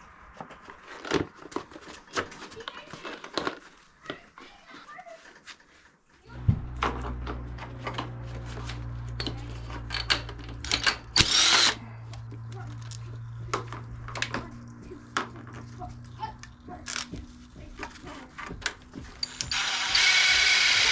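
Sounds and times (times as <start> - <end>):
power tool motor running: 6.4 - 11.8, 19.2 - 20.9.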